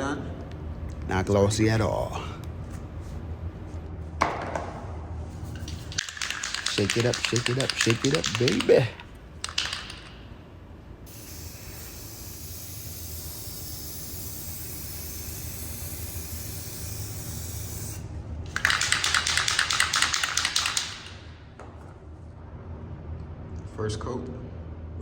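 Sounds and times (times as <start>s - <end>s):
spray can ball rattling: 5.4s - 10.3s, 11.1s - 21.2s
spray paint can hissing: 5.5s - 8.7s, 11.1s - 21.2s.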